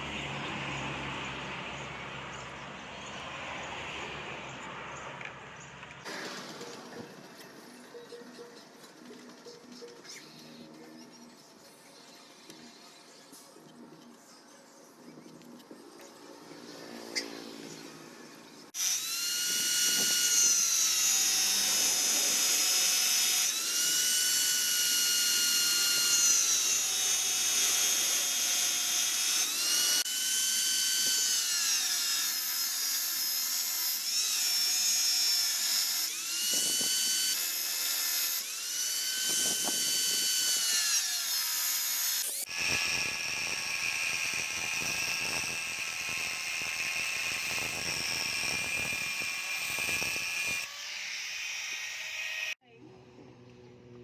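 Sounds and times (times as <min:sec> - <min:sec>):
small motor whining: 0:15.1 - 0:54.0.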